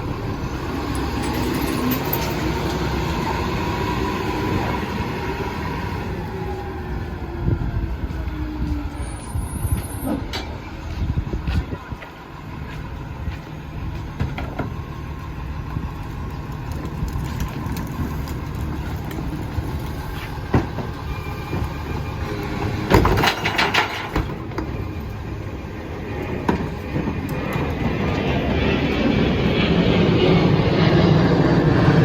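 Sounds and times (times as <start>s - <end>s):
garbage truck engine drone: 0.0s - 32.0s
metal clattering: 22.9s - 24.4s.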